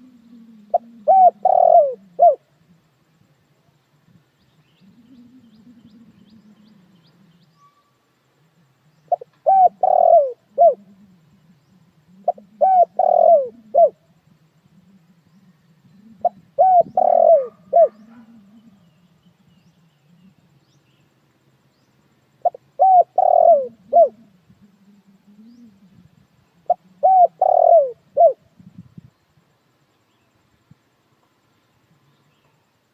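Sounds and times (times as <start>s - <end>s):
dove cooing: 0.0s - 3.0s, 4.6s - 7.5s, 8.9s - 20.6s, 22.4s - 28.9s.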